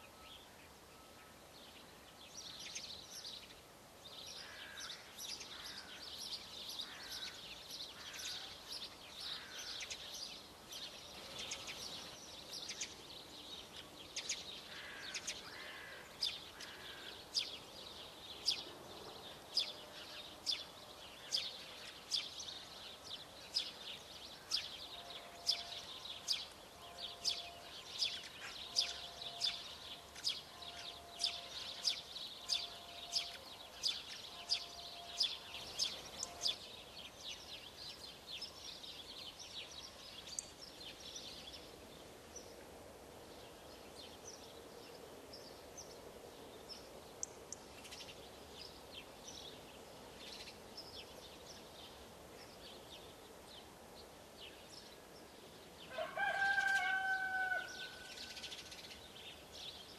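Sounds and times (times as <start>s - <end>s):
songbirds singing and chirping: 0.0s - 59.9s.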